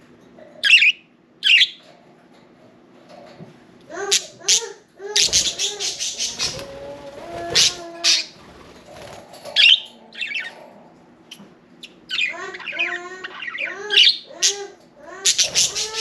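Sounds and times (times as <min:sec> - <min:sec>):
budgerigars chirping and warbling: 0:00.6 - 0:01.8, 0:04.1 - 0:10.7, 0:11.8 - 0:16.0.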